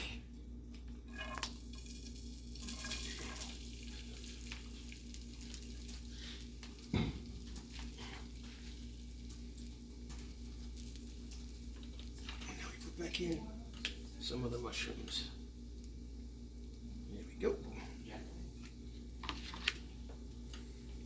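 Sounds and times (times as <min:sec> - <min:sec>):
rice sizzling in a pan: 0:01.0 - 0:21.0
stirring and scraping in pan: 0:01.1 - 0:12.6.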